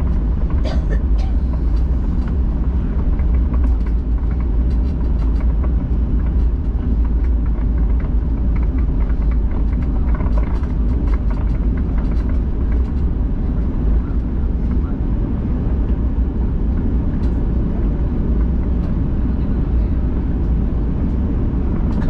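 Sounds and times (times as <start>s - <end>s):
faint clicks and rattles: 0.0s - 14.8s
airplane cabin rumble: 0.0s - 22.0s.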